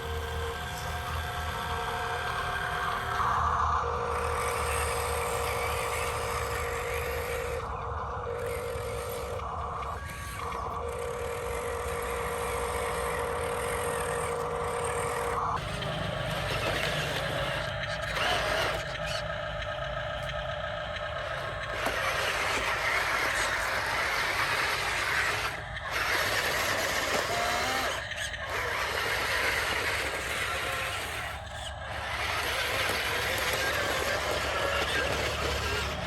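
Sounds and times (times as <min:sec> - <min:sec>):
small motors and gearing whirring: 0:00.0 - 0:36.0.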